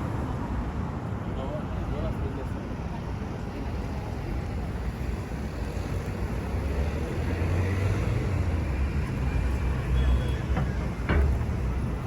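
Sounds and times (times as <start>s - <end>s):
passing vehicles: 0.0s - 12.0s
vehicle engine rumble: 3.2s - 12.0s.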